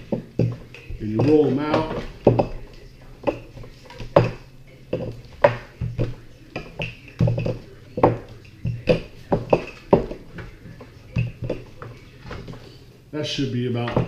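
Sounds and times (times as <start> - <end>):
rolling pin knocking on wooden table: 0.0 - 4.4, 5.0 - 10.3.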